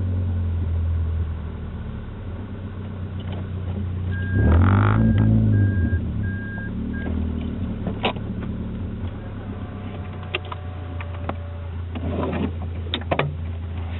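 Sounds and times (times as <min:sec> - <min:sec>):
car engine revving and idling: 0:00.0 - 0:13.9
short electronic beep: 0:04.1 - 0:07.2.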